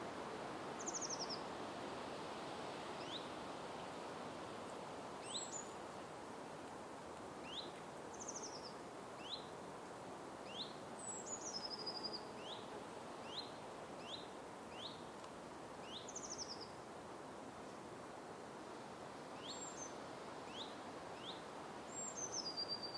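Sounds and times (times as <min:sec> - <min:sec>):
steady background hiss: 0:00.0 - 0:22.9.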